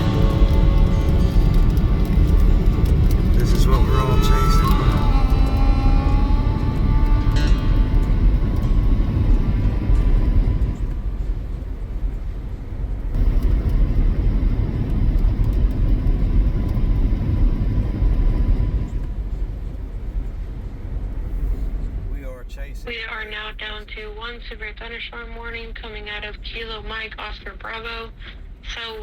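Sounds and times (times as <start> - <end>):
car driving road noise: 0.0 - 23.2.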